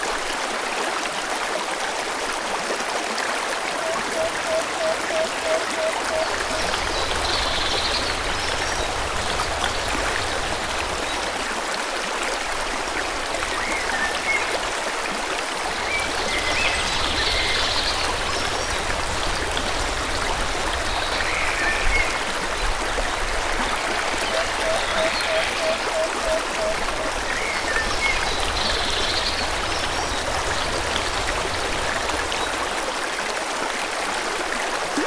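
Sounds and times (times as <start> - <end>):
stream flowing: 0.0 - 35.0.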